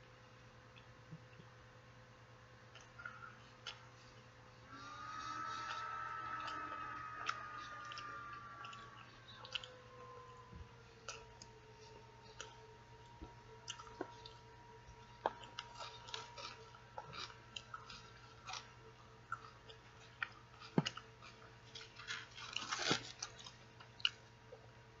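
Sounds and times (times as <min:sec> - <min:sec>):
faint steady whine: 0:00.0 - 0:25.0
wet chewing and mouth smacks: 0:02.7 - 0:04.3, 0:06.4 - 0:10.4, 0:11.0 - 0:24.3.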